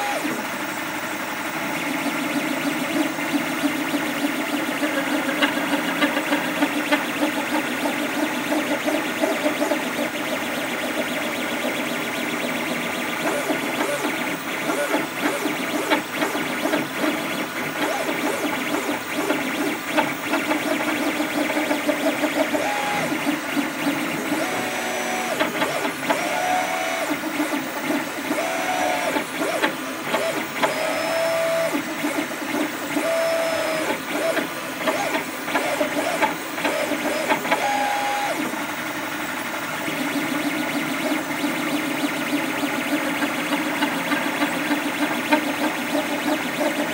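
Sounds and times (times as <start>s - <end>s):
printer motors whirring and rattling: 0.0s - 46.9s.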